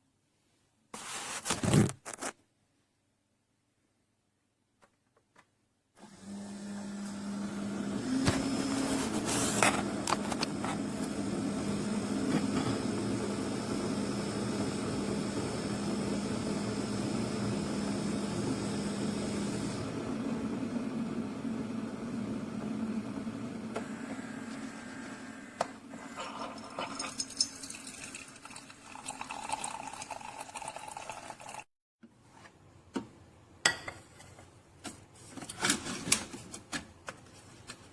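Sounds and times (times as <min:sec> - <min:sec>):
coffee maker humming: 0:06.0 - 0:31.7
coffee maker hiss: 0:11.6 - 0:20.0, 0:23.8 - 0:31.6.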